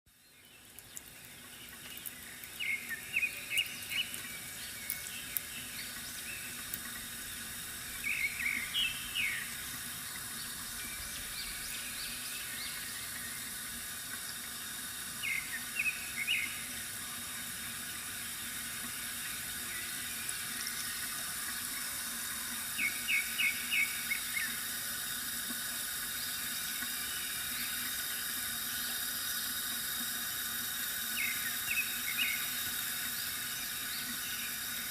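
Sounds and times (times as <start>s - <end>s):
small birds chirping: 0.1s - 7.2s, 7.8s - 13.6s, 15.2s - 16.8s, 22.7s - 24.6s, 31.0s - 34.9s
water trickling from fountain: 0.1s - 34.9s.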